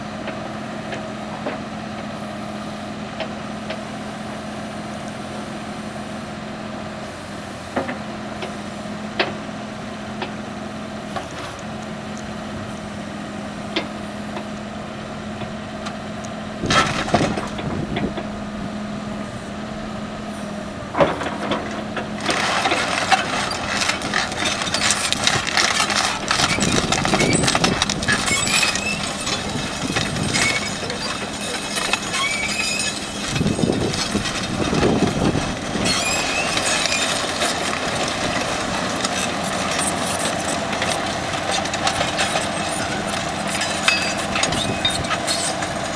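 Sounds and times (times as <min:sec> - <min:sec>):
excavator diesel engine running: 0:00.0 - 0:45.9
dense metallic clatter: 0:20.9 - 0:45.9.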